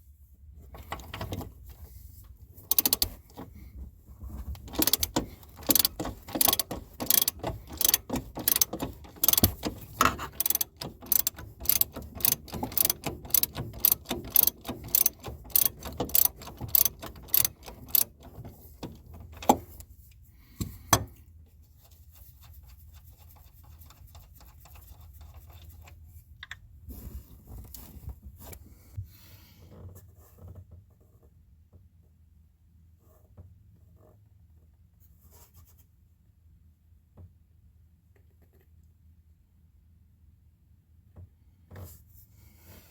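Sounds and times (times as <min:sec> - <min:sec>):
faint handling noise: 0:00.4 - 0:29.0
ratchet wrench clicking: 0:02.7 - 0:03.3, 0:04.6 - 0:19.8.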